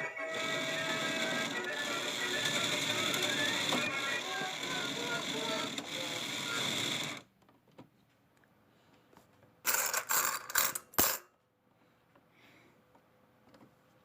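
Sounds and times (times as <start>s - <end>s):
claw machine mechanism rattling: 0.4s - 7.2s, 9.7s - 11.2s.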